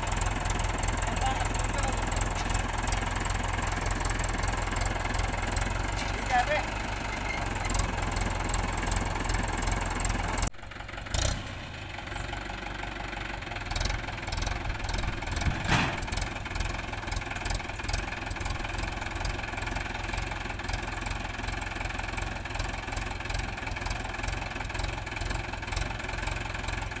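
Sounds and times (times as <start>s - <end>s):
tractor diesel engine clattering: 0.0s - 27.0s.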